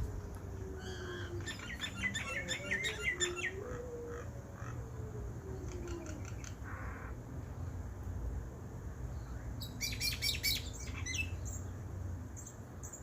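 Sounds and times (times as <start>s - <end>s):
small birds chirping: 0.8s - 3.8s, 9.1s - 13.0s.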